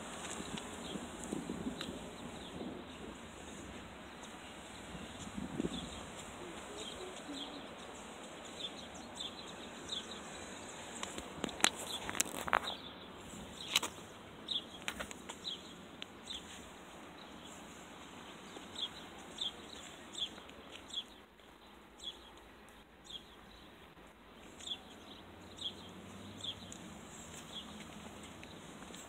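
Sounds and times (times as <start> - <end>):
outdoor background noise: 0.0 - 29.0.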